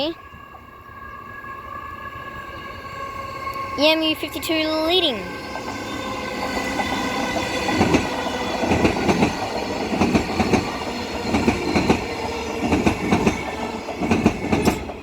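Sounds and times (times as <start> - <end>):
steady high tones: 0.0 - 14.2
train wheels clacking on rails: 3.5 - 15.0.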